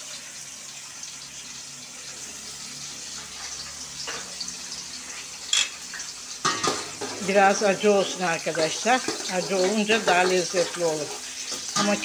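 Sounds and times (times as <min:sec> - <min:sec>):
peppers sizzling in oil: 0:00.0 - 0:12.0
metal pot clatter: 0:05.5 - 0:07.4, 0:11.5 - 0:12.0.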